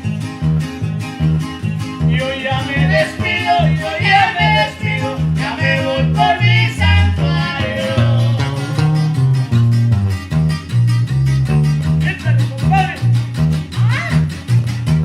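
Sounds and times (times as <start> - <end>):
band playing strummed strings: 0.0 - 15.0
person singing: 2.2 - 9.1.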